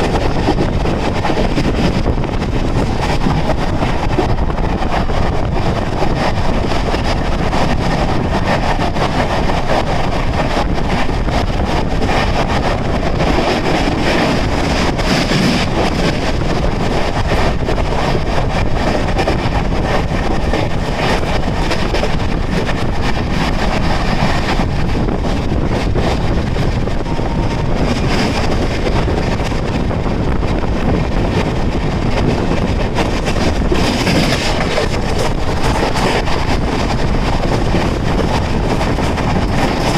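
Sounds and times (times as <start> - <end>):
wheels clicking over rail joints: 0.0 - 30.0
train wheels rushing on rails: 0.0 - 39.9.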